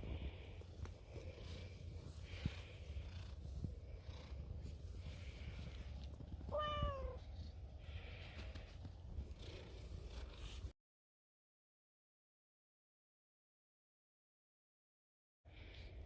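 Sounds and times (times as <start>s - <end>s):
cat purring: 0.0s - 10.7s
cat meow: 6.5s - 7.2s.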